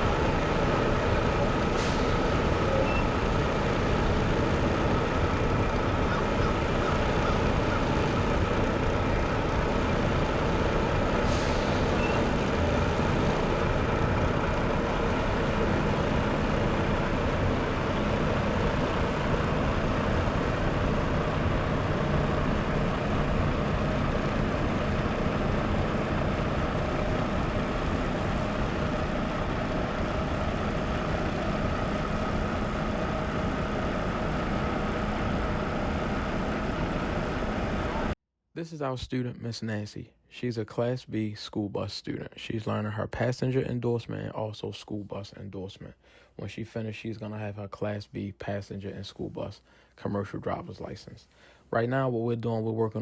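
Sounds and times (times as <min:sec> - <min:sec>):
diesel truck engine running: 0:00.0 - 0:38.2.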